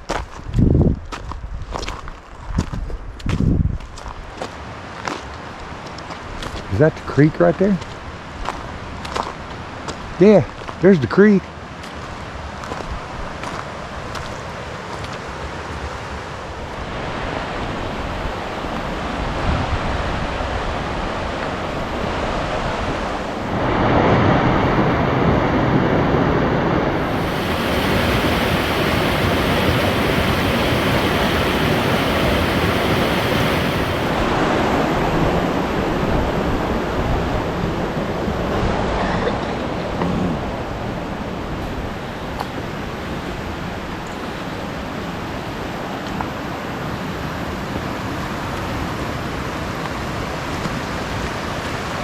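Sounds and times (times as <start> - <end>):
water rushing over rocks: 26.8 - 47.2.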